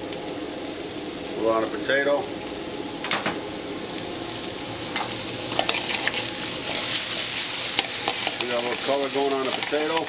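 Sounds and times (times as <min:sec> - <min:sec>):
potatoes sizzling in a skillet: 0:00.0 - 0:10.0.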